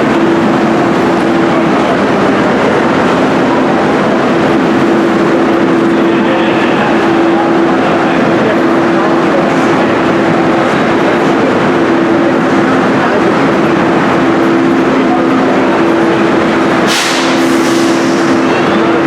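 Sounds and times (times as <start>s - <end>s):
train machinery droning: 0.0s - 19.0s
air release hiss: 16.8s - 18.5s.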